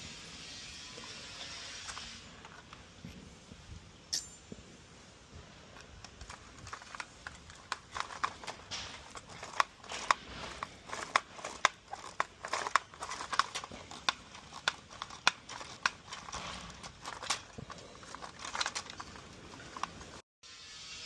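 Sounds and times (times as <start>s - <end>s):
plastic parts scraping: 5.6s - 20.2s
plastic parts clicking and knocking: 5.7s - 20.2s.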